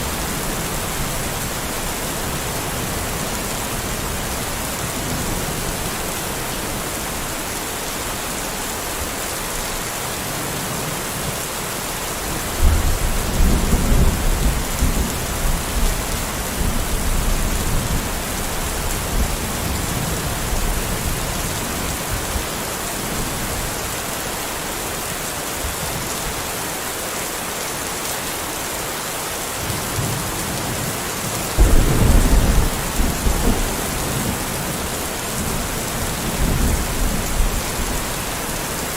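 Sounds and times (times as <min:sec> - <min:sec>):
steady rain falling: 0:00.0 - 0:38.9
thunder rumbling: 0:31.6 - 0:38.2.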